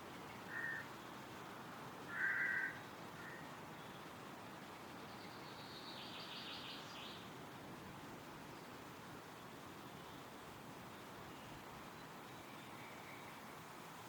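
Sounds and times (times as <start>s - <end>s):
wind through trees: 0.0s - 14.0s
bird cawing: 0.5s - 0.8s, 2.1s - 3.4s.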